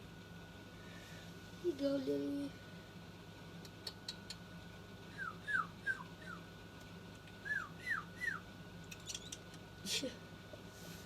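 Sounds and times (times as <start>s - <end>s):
young bird peeping: 5.1s - 6.5s, 7.4s - 9.6s.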